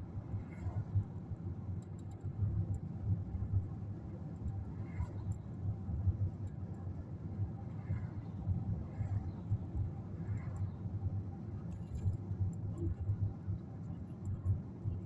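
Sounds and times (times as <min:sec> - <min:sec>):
vehicle rumbling in motion: 0:00.0 - 0:15.0
faint scattered clicks: 0:01.8 - 0:02.9.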